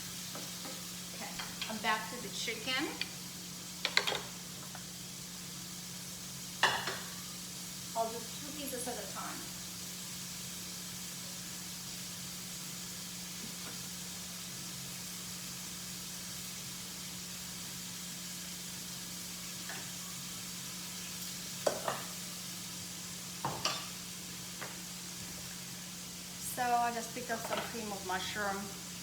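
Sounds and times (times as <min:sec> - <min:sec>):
oil sizzling in a frying pan: 0:00.0 - 0:29.0
utensil knocking against pan: 0:21.6 - 0:22.1.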